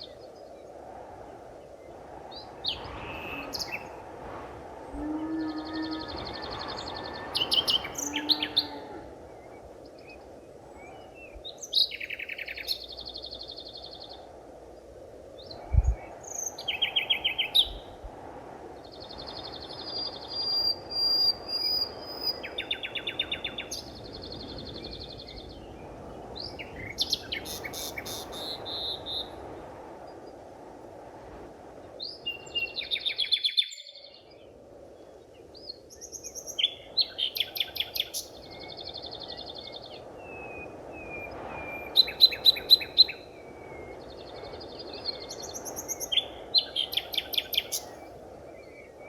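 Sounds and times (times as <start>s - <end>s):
birds trilling and chirping: 5.2s - 9.7s
low rushing background: 12.8s - 20.4s.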